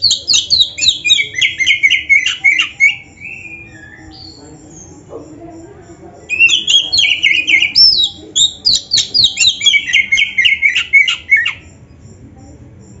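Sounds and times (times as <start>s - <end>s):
bird singing sharp whistled notes: 6.3s - 11.6s.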